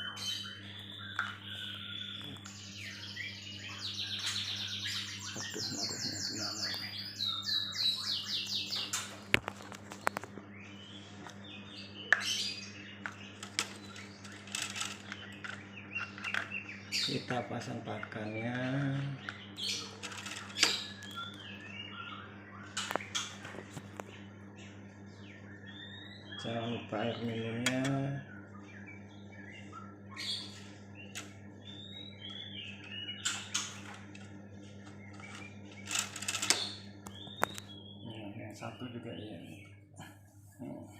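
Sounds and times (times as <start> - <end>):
small birds chirping: 0.0 - 40.9
steady low hum: 0.0 - 40.9
cage clicks and knocks: 13.4 - 15.6, 35.1 - 37.6.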